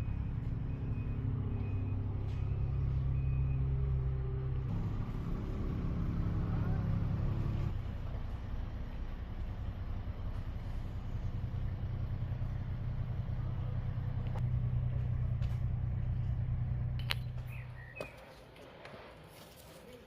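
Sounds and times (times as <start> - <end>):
vehicle engine rumbling: 0.0 - 20.0
faint bird chirps: 17.4 - 18.2.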